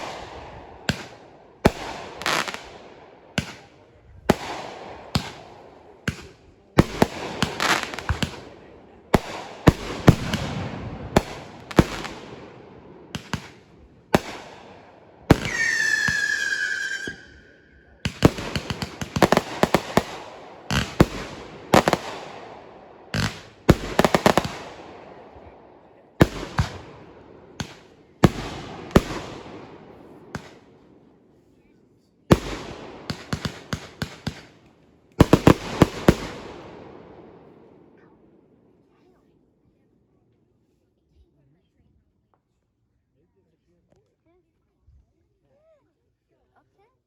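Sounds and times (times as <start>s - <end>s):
fireworks banging: 0.0s - 25.2s, 26.2s - 30.8s, 32.3s - 34.6s, 35.2s - 37.3s
whistling firework: 15.3s - 18.2s.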